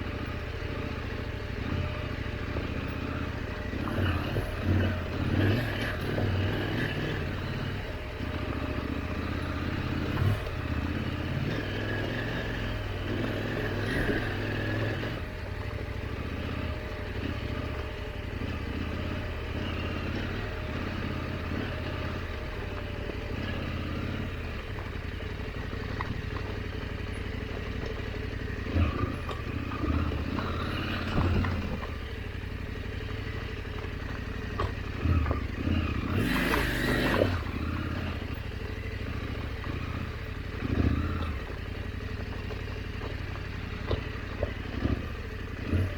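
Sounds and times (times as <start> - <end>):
motorcycle engine running: 0.0 - 45.9
knocks and clatter from bike: 12.5 - 45.9.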